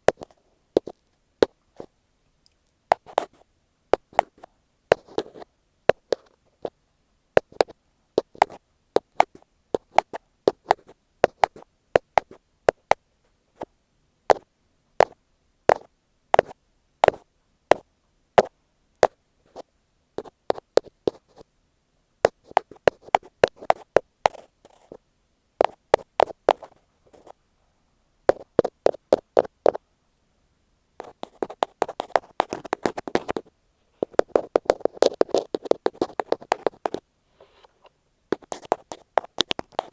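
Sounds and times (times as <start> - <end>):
ear pick tapping on microphone: 28.3 - 29.8, 38.3 - 39.9
scratching rub on microphone: 31.0 - 37.8, 38.4 - 39.9.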